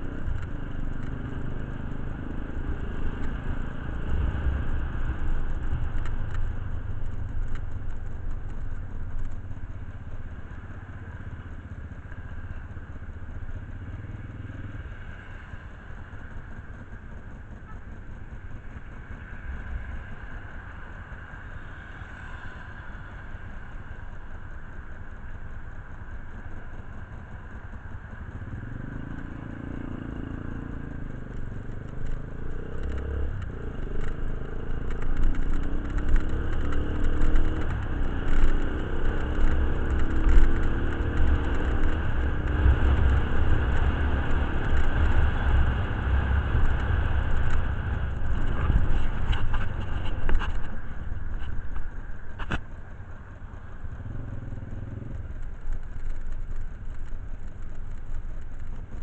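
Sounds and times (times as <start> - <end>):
motorcycle engine revving: 28.3 - 52.8, 53.8 - 56.8.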